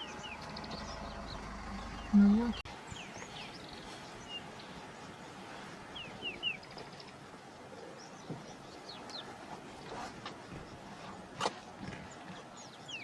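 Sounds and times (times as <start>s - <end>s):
birds whistling chirps: 0.0s - 5.3s
steady outdoor hiss: 0.0s - 13.0s.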